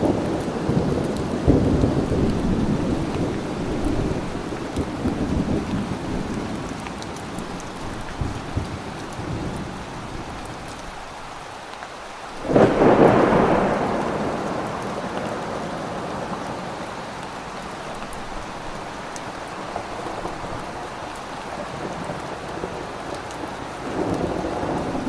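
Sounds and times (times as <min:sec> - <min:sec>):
rumbling thunderclap: 0:00.0 - 0:06.8, 0:12.4 - 0:16.7
steady rain falling: 0:00.0 - 0:25.0.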